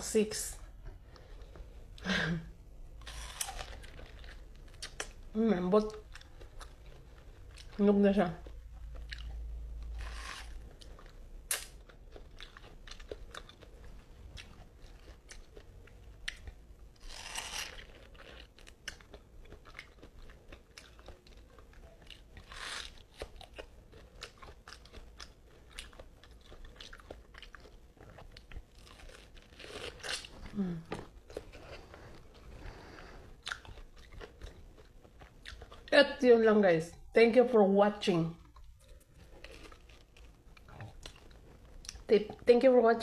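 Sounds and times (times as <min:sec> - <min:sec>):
wet chewing with lip smacks: 0:17.2 - 0:35.9
breathy noises: 0:30.3 - 0:33.4.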